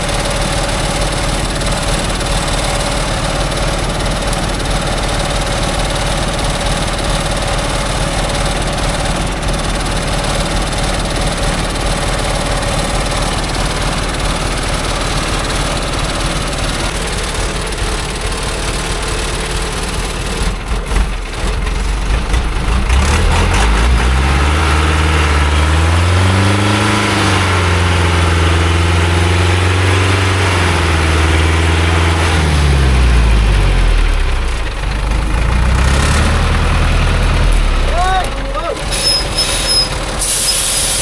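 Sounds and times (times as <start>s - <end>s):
truck engine revving under load: 0.0s - 41.0s.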